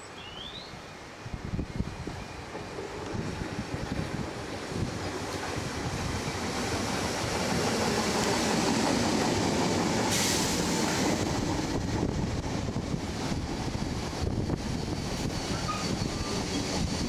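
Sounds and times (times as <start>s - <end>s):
electric train passing: 0.9s - 17.0s
sudden hiss: 10.0s - 11.6s.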